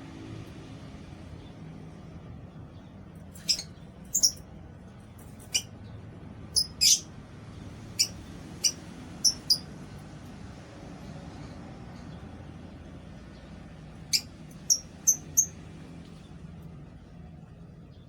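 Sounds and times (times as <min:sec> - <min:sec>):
lovebirds chirping: 0:02.7 - 0:04.4, 0:06.6 - 0:07.1, 0:08.0 - 0:09.7, 0:13.3 - 0:15.6.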